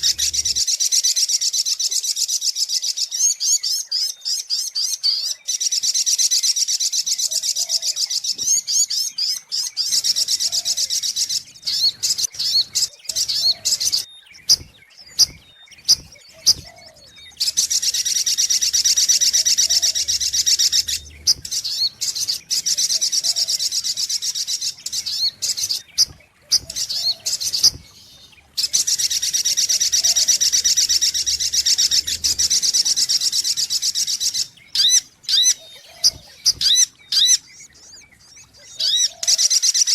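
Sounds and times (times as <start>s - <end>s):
bird chirping shrilly: 0.0s - 0.6s.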